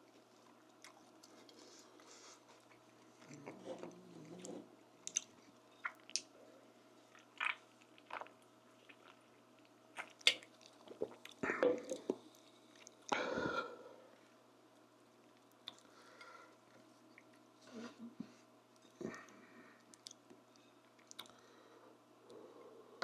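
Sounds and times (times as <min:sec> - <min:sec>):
person chewing with lip smacks: 0:07.1 - 0:13.1, 0:15.3 - 0:15.9, 0:19.8 - 0:21.4.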